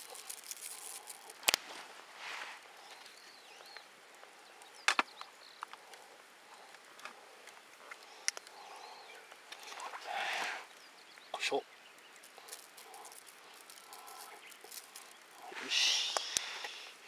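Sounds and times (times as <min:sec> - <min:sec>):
seasoning shaker rustling: 0:00.0 - 0:01.6, 0:12.0 - 0:15.7
faint birdsong: 0:00.0 - 0:17.0.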